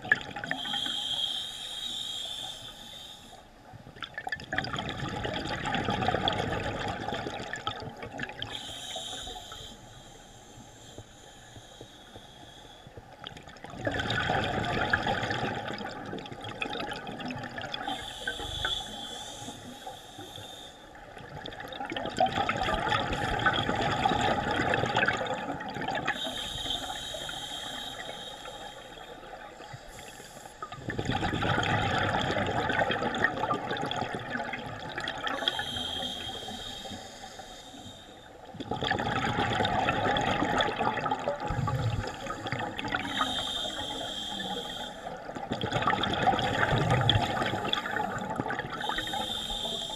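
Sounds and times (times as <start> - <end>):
regulator hissing inhale: 0.5 - 3.6, 8.5 - 13.0, 17.8 - 21.0, 26.1 - 30.8, 35.3 - 38.5, 41.5 - 45.3, 47.2 - 49.9
bubbling exhaled air: 13.6 - 20.5, 29.7 - 37.9, 38.5 - 49.9.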